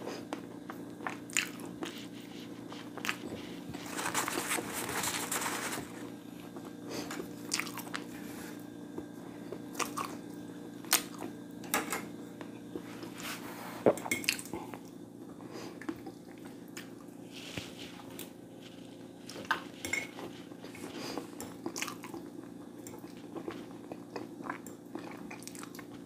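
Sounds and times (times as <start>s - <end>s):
steady low hum: 0.0s - 26.0s
chewing with mouth clicks: 0.3s - 4.2s, 7.5s - 8.1s, 9.0s - 10.2s, 19.2s - 26.0s.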